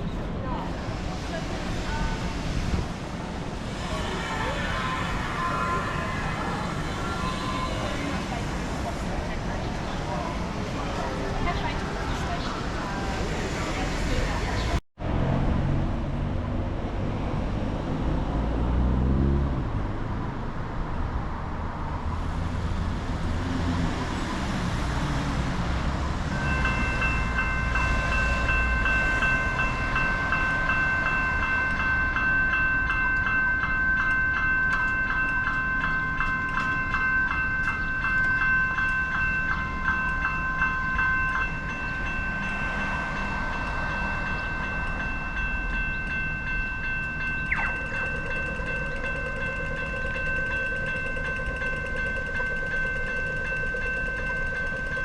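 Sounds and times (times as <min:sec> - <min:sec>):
vehicle engines passing: 0:00.0 - 0:33.1, 0:38.0 - 0:54.9
low rumble of passing vehicles: 0:00.0 - 0:55.0
level-crossing bell ringing: 0:26.3 - 0:55.0.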